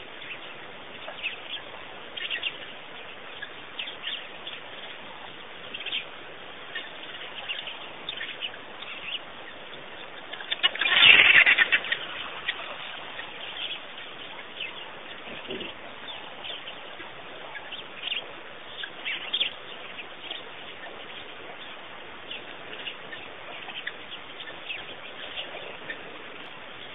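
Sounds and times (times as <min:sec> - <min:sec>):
small birds chirping: 0:00.0 - 0:26.9
flurry of wingbeats: 0:10.4 - 0:13.2.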